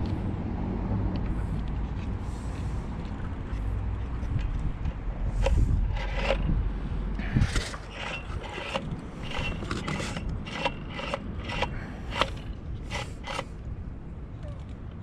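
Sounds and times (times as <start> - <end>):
clamp clicking and scraping: 5.3 - 6.6, 7.2 - 13.5.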